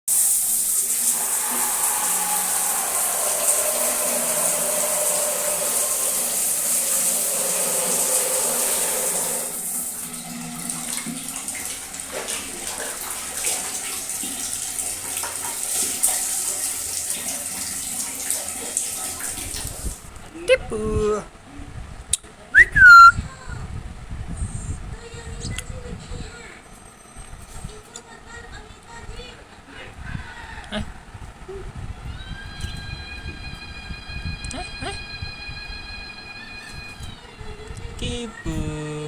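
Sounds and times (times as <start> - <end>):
water running from tap: 0.1 - 20.1.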